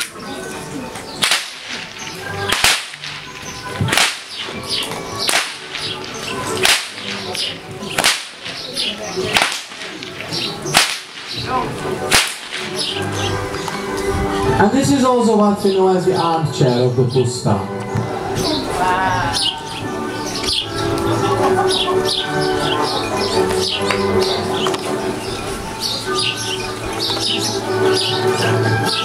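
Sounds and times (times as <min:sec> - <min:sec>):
whip cracking: 0:00.0 - 0:00.2, 0:01.2 - 0:13.2.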